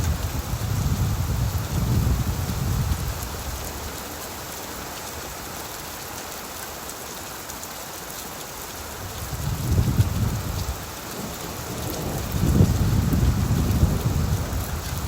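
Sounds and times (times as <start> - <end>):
rain falling on leaves: 0.0 - 15.0
distant thunder rumble: 9.4 - 15.0.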